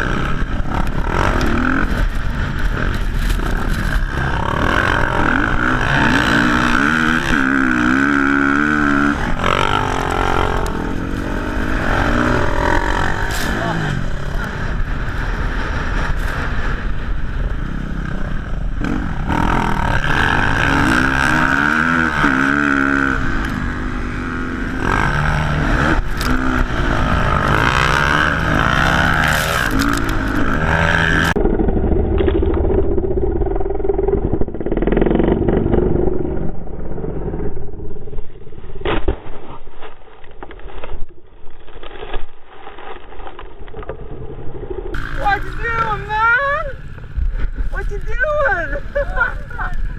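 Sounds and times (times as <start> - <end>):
dirt bike engines revving: 0.0 - 31.8, 44.9 - 49.9.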